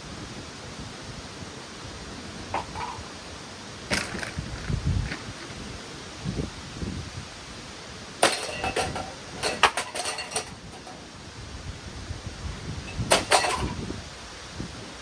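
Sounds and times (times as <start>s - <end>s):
metal fan parts clanking under blows: 2.2s - 5.6s, 8.0s - 11.4s, 12.3s - 14.9s.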